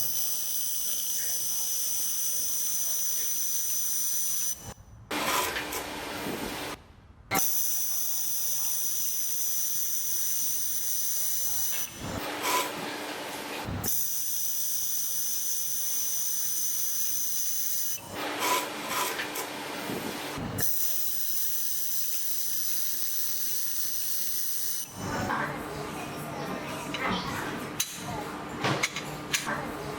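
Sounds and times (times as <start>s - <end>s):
laser welder hissing and whining: 0.0s - 5.6s, 7.4s - 12.9s, 13.8s - 19.2s, 19.8s - 24.9s.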